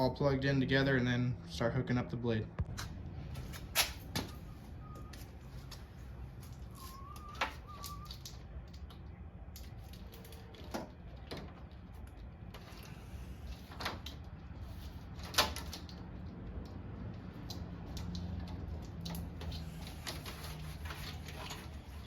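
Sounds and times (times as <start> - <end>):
faint wavering chirp: 6.7 - 8.2.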